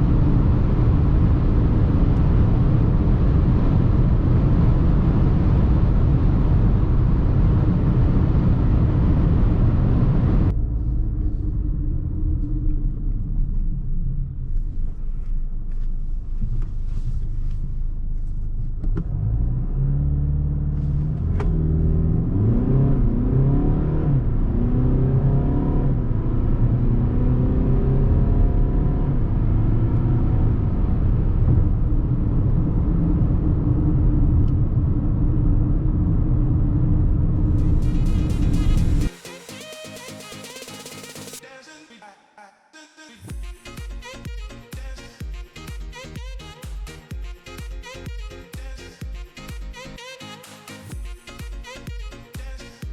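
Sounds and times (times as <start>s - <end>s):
road and wind noise: 0.0s - 39.1s
diesel car engine accelerating: 0.0s - 39.2s.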